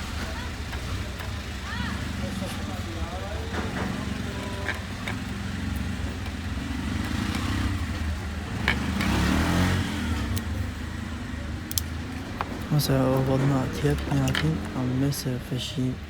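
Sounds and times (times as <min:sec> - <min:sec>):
motor engine running: 0:00.0 - 0:15.4
sharp clicks: 0:11.6 - 0:13.3.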